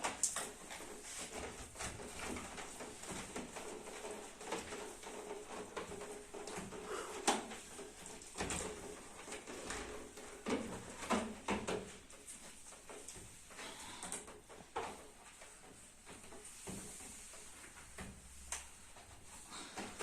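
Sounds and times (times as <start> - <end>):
household objects knocking and scraping: 0.0 - 13.5.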